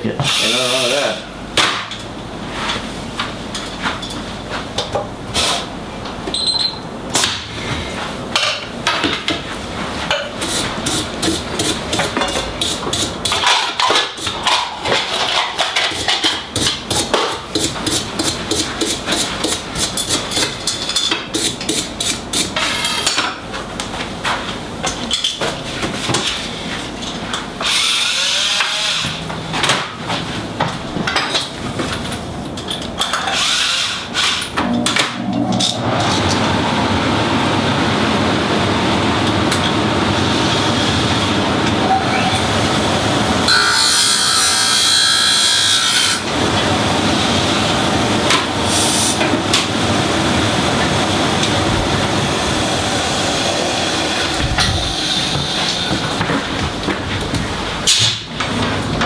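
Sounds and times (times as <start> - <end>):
tools knocking and clattering: 30.6 - 33.4.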